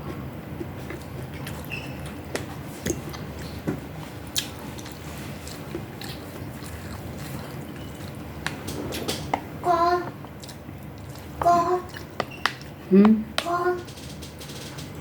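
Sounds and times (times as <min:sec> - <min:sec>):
chewing and wet mouth noises: 0:00.8 - 0:09.3, 0:10.2 - 0:12.8.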